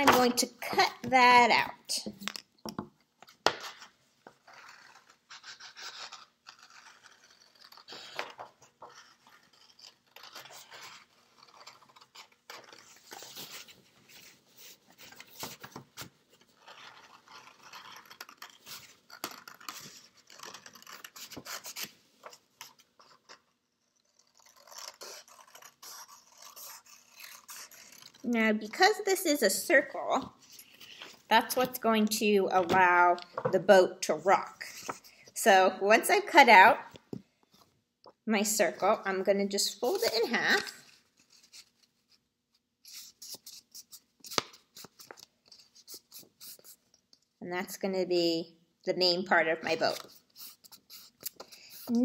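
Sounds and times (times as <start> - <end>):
scissors snipping paper: 16.6 - 21.9, 24.0 - 29.0.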